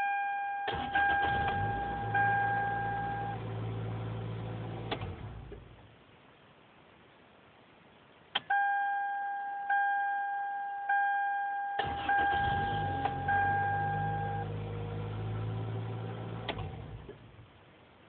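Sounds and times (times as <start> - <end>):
car engine starting and idling: 0.7 - 5.9, 11.8 - 17.5.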